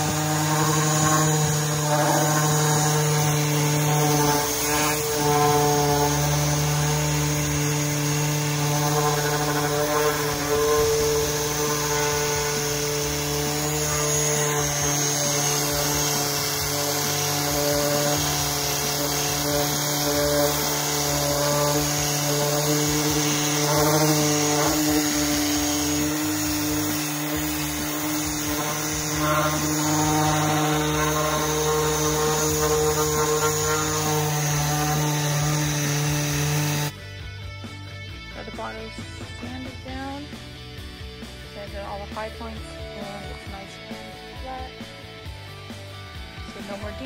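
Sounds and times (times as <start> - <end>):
sanding pad rubbing filler: 0.0 - 36.9
electric sander motor hum: 0.0 - 37.0.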